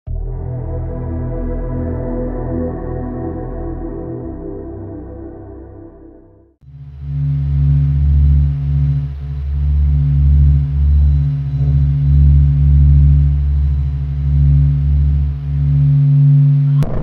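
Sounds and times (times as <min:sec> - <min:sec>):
deep electronic drone: 0:00.1 - 0:17.0
rough noisy rumble: 0:16.7 - 0:17.0.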